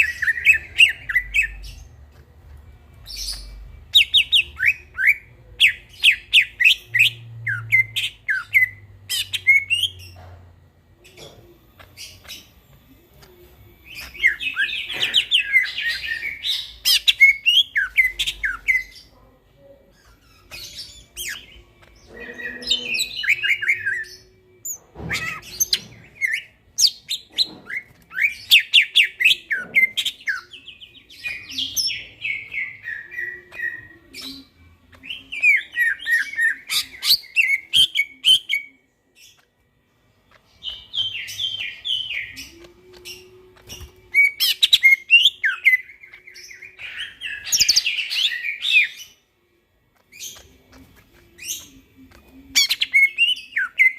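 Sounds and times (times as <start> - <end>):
bird chirping and trilling: 0.0 - 10.2, 11.0 - 49.4, 50.0 - 53.9.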